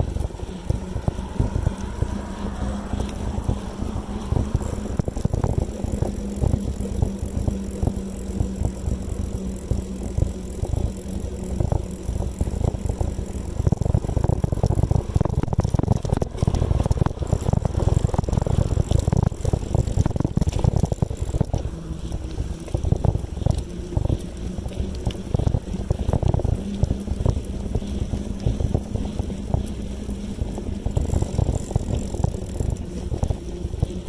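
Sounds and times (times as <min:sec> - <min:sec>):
bicycle frame rattling: 0:00.0 - 0:34.0
wind buffeting microphone: 0:00.0 - 0:34.0.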